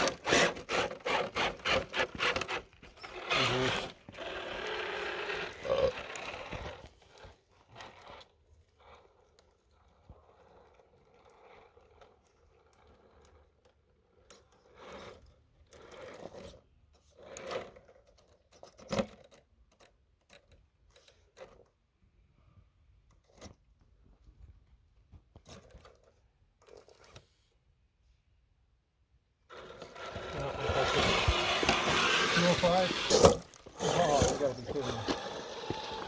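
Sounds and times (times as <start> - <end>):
toy car scraping over rocks: 0.0 - 19.8, 29.5 - 36.0.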